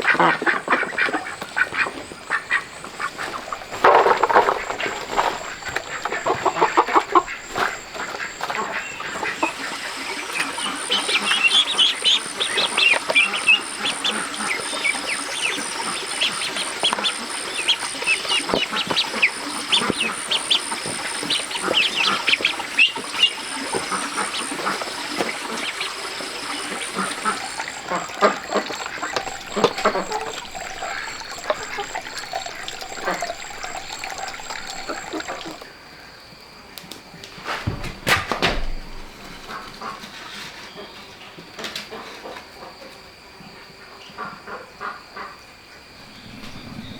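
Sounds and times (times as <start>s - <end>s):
ducks quacking: 0.0s - 35.7s.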